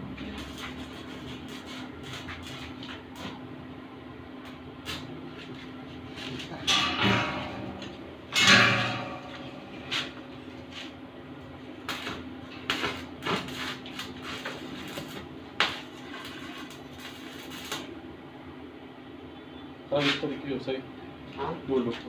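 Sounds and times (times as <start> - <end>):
steady low hum: 0.0 - 22.0
metal scraping: 6.6 - 10.2
metal parts clanking: 6.7 - 9.6.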